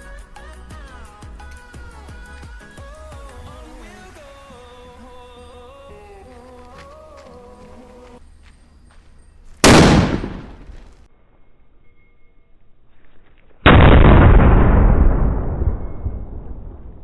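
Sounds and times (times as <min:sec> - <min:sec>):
firecracker bang: 0:09.6 - 0:10.8, 0:13.7 - 0:17.0.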